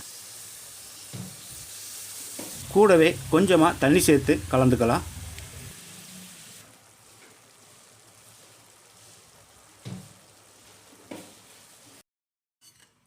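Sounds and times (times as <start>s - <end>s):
gravy simmering in a pan: 5.9s - 12.0s.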